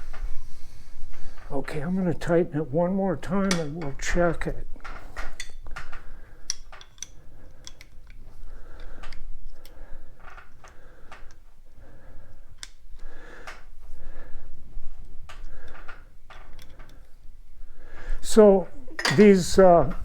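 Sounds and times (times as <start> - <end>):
metal tool clicking and scraping: 5.2 - 8.2.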